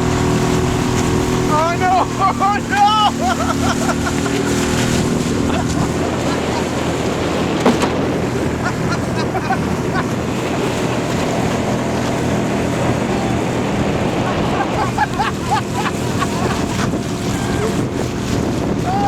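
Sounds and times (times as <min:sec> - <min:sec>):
outboard motor running: 0:00.0 - 0:19.0
water rushing: 0:00.0 - 0:19.0
wind buffeting microphone: 0:00.0 - 0:19.0.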